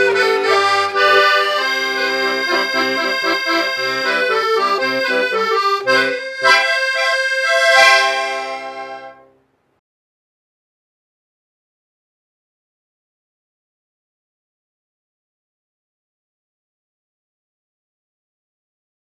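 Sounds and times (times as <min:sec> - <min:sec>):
solo accordion melody: 0:00.0 - 0:09.3.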